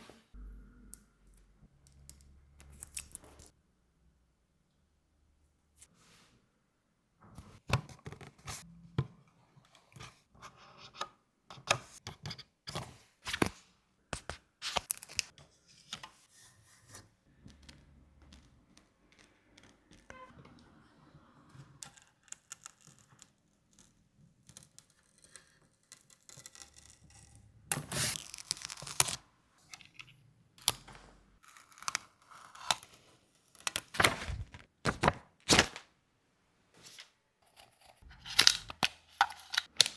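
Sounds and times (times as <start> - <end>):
packaging tearing and crinkling: 27.9 - 29.2, 33.7 - 35.8, 38.2 - 39.9
packaging rustling: 33.7 - 35.8.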